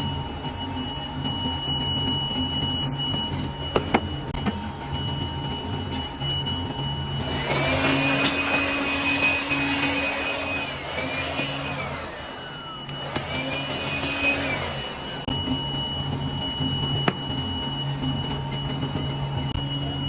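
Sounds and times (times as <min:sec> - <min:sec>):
power tool motor whining: 0:00.0 - 0:20.0.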